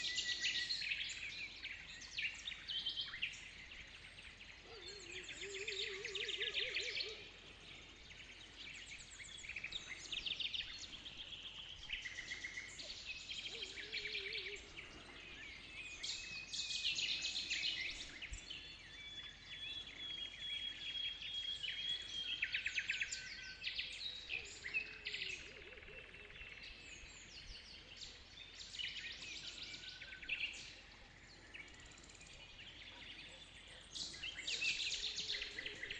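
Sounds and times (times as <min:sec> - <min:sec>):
birds singing and trilling: 0:00.0 - 0:35.9
low warbling bird call: 0:04.6 - 0:18.3.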